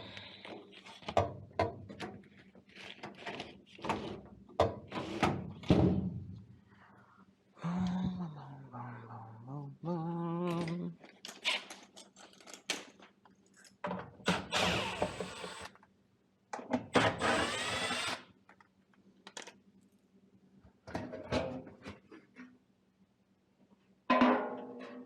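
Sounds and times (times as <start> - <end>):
power drill whining: 14.3 - 15.7, 17.0 - 18.3.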